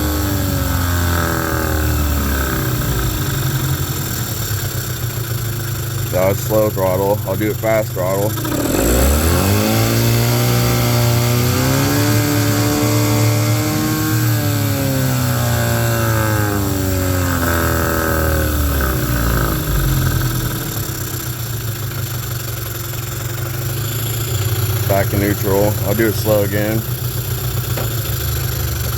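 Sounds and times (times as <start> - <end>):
outboard motor revving: 0.0 - 28.9.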